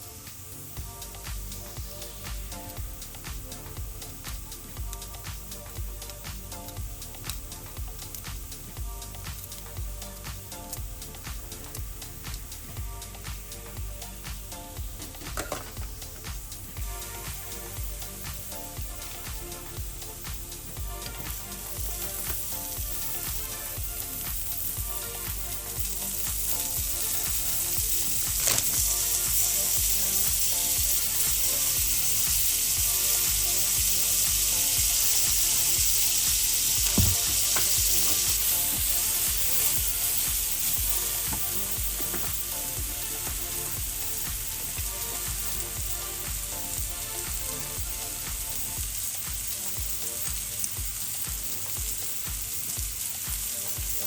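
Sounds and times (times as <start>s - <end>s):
mushrooms sizzling in a skillet: 0.0s - 54.0s.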